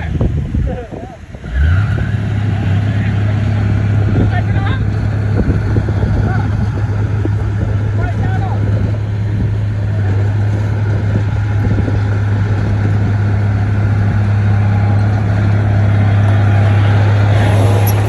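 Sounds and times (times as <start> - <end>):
bulldozer diesel engine droning: 12.8 - 18.0.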